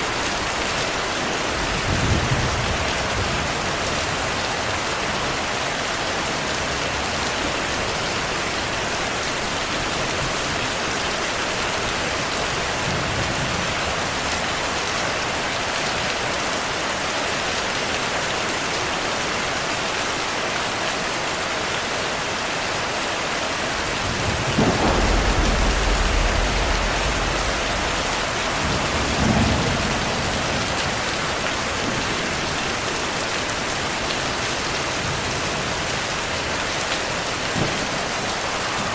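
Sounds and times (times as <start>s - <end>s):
heavy rain: 0.0s - 38.9s
thunder rumbling: 23.6s - 32.9s, 37.4s - 38.9s.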